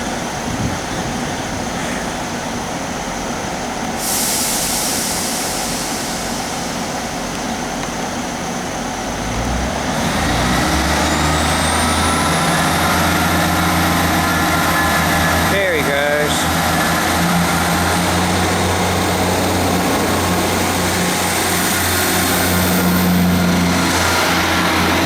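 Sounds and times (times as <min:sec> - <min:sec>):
train diesel engine with rising whine: 0:00.0 - 0:25.0
loud hiss of air: 0:03.9 - 0:07.7.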